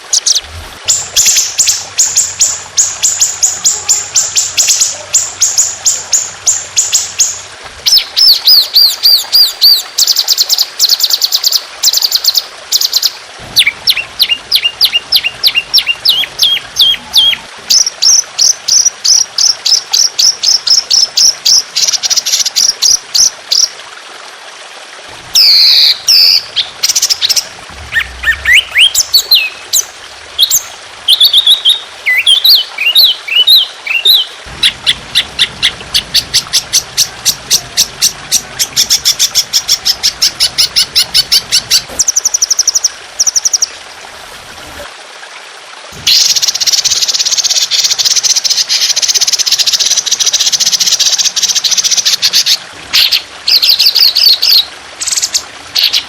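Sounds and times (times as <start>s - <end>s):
songbird singing: 0.0s - 23.7s, 25.4s - 43.8s
trickling water: 0.0s - 56.0s.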